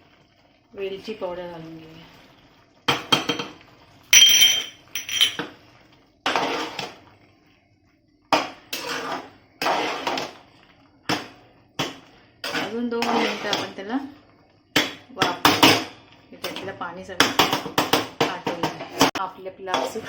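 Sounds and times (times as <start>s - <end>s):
metal spoon scraping a pot: 12.4s - 13.8s.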